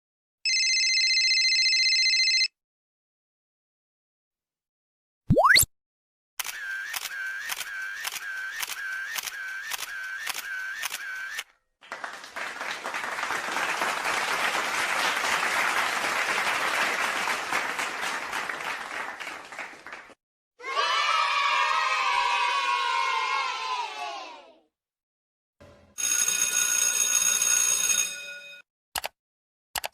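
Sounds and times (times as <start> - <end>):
clicks with dipping tone: 5.3 - 5.7
crowd cheering: 7.4 - 24.6
applause: 11.8 - 20.2.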